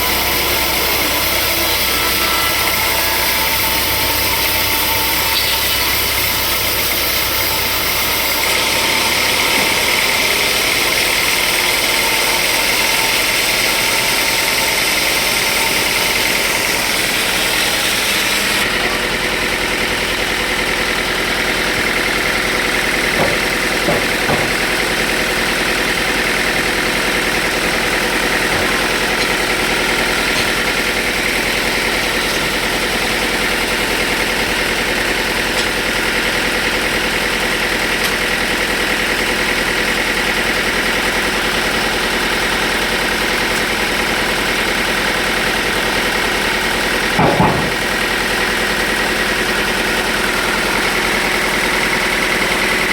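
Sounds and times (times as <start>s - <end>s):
loud high hiss: 0.0s - 19.1s
sawmill machinery drone: 0.0s - 52.9s.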